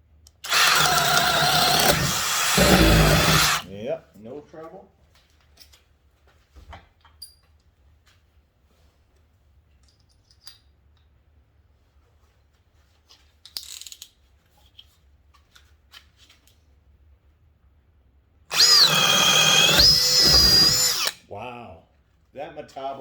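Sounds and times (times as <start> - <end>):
hammer drill whining into wood: 0.4 - 3.7, 18.5 - 21.2.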